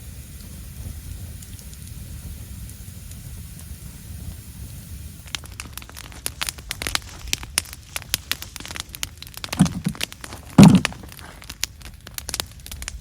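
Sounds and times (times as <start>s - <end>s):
wood fire crackling and popping: 0.0s - 13.0s
dull knock: 9.6s - 10.0s, 10.6s - 11.0s.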